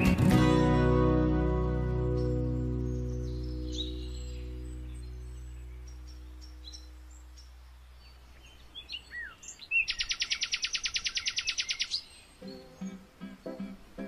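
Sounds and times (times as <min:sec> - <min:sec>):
background music: 0:00.0 - 0:05.7, 0:12.4 - 0:14.0
birds chirping: 0:00.0 - 0:14.0
loud rapid bird trill: 0:08.7 - 0:13.0.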